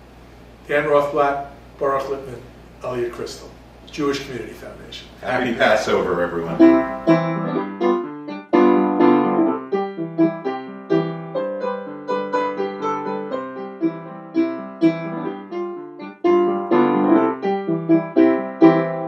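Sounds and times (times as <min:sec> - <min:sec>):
upbeat piano melody: 0:05.3 - 0:19.0.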